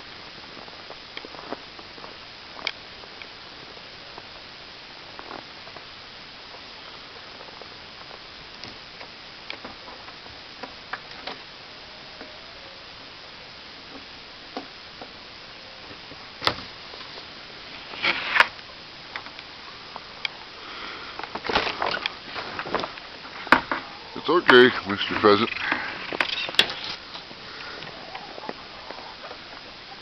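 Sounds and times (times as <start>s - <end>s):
background hiss: 0.0s - 30.0s
rustling: 13.8s - 30.0s.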